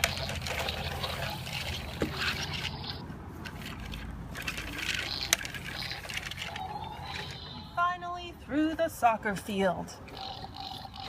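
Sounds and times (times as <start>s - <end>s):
toy train rolling and rattling: 0.0s - 7.8s.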